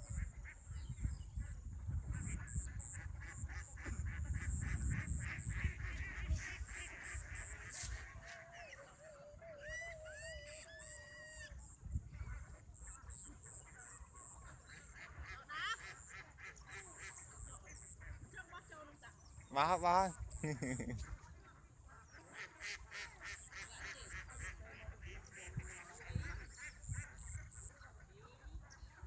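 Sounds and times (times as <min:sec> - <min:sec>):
birds calling: 0:12.8 - 0:21.2.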